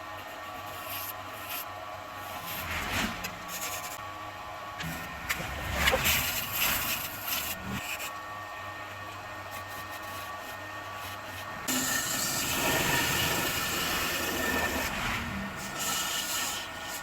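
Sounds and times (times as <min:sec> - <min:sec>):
tool scraping wood: 0:00.2 - 0:04.0, 0:04.9 - 0:08.2, 0:09.4 - 0:17.0
woodworking machine motor humming: 0:11.4 - 0:17.0.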